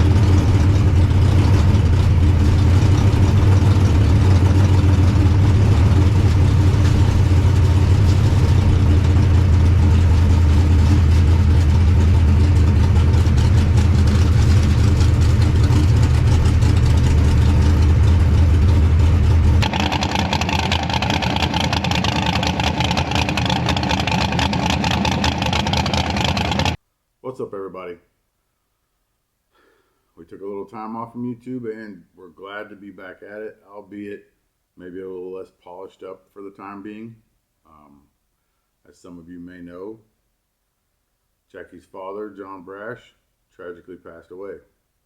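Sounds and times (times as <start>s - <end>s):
car engine droning: 0.0s - 26.8s.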